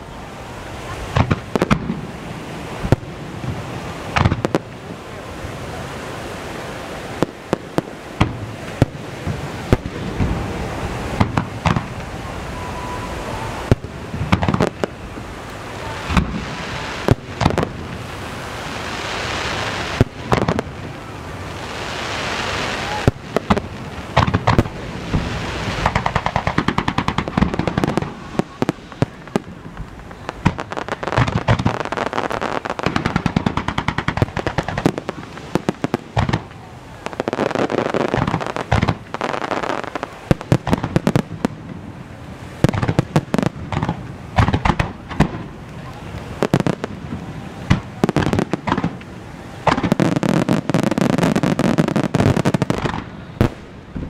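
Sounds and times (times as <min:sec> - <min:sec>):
firework crackling and hiss: 0:00.0 - 0:54.0
firework shells booming: 0:11.2 - 0:12.1, 0:23.0 - 0:41.8, 0:42.6 - 0:45.6, 0:46.4 - 0:54.0.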